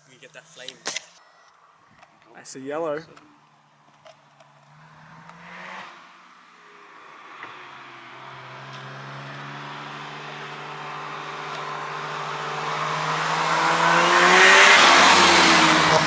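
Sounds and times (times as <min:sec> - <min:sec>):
car passing at speed: 0:04.6 - 0:16.0.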